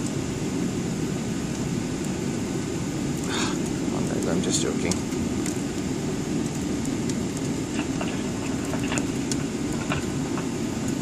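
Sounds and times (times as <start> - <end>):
airliner cabin rumble: 1.7 - 11.0.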